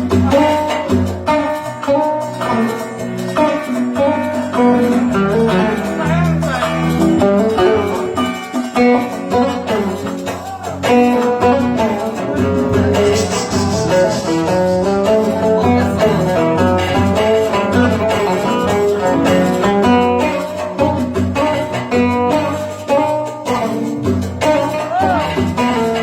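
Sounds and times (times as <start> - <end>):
oud melody: 0.0 - 26.0.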